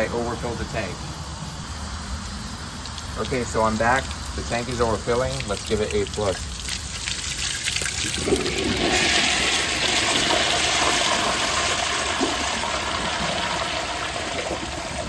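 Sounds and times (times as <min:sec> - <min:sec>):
water bubbling in pipes: 0:02.8 - 0:15.0
toilet flushing water rush: 0:07.1 - 0:15.0.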